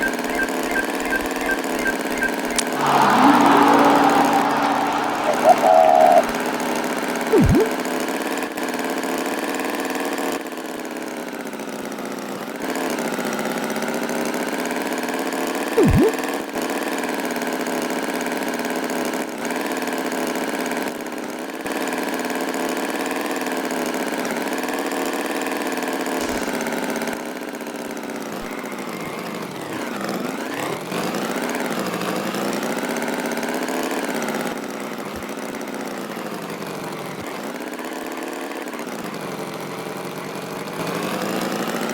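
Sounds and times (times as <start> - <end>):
loud rising squeak: 1.6 - 7.8.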